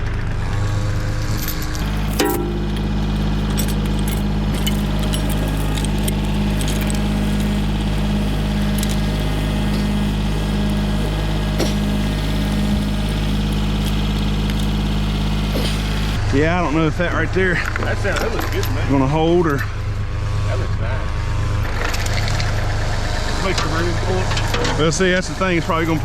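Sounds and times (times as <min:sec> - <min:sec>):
light metallic clinks and rattles: 0:01.8 - 0:16.2
tractor engine running: 0:01.8 - 0:16.2.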